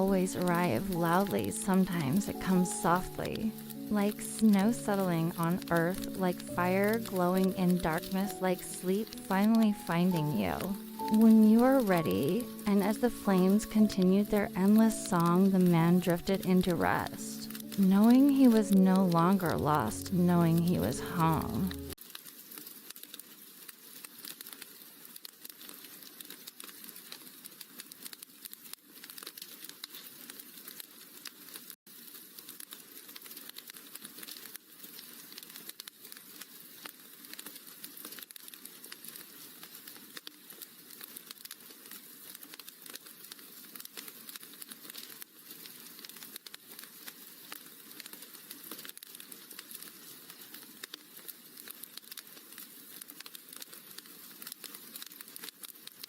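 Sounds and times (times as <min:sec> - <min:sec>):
wood fire crackling in fireplace: 0:00.0 - 0:56.0.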